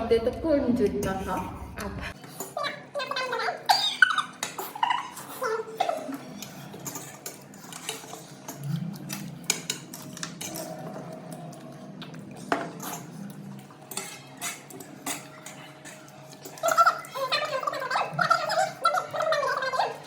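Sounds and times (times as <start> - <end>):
dishes and cutlery clinking: 3.7 - 11.6, 12.4 - 20.0.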